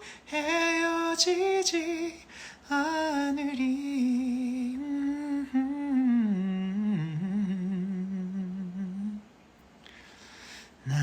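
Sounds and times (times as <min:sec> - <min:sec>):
man singing unaccompanied: 0:00.0 - 0:09.3
short breath: 0:02.3 - 0:02.6, 0:09.8 - 0:11.0.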